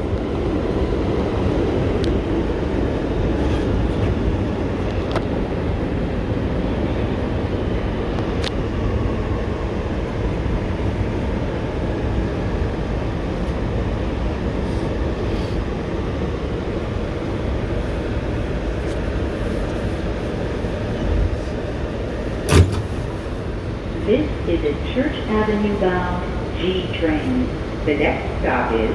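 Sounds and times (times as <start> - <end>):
subway car rumble: 0.0 - 28.9
sharp knock: 22.5 - 23.0.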